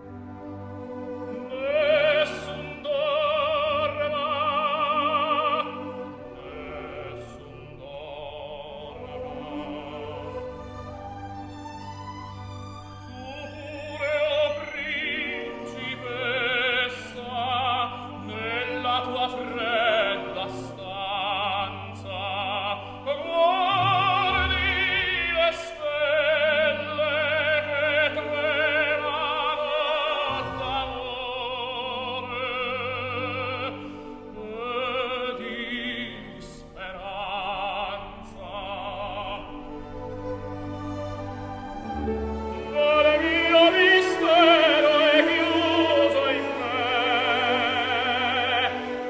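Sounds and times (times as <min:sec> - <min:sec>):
orchestral accompaniment: 0:00.0 - 0:49.0
operatic singer with vibrato: 0:01.2 - 0:11.6, 0:12.9 - 0:49.0.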